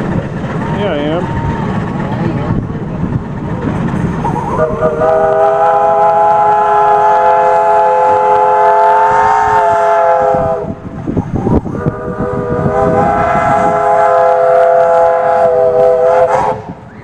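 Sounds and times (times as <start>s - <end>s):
steam whistle blowing: 4.4s - 10.8s, 11.7s - 17.0s.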